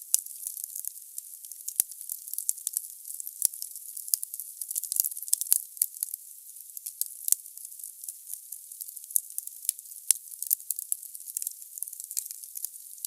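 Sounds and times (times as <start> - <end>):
wood fire crackling: 8.8 - 12.8.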